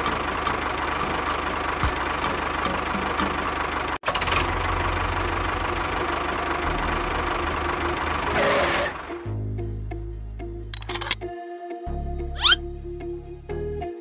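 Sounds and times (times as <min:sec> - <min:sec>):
tractor engine running: 0:00.0 - 0:09.2.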